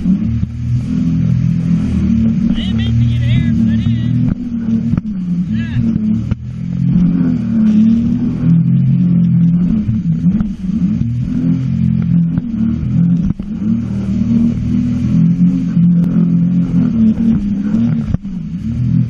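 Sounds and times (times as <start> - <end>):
jet ski engine running: 0.0 - 19.0.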